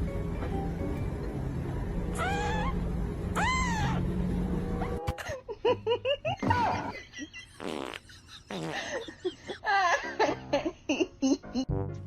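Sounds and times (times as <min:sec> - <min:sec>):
cat meowing: 0:02.2 - 0:02.8, 0:03.4 - 0:04.0.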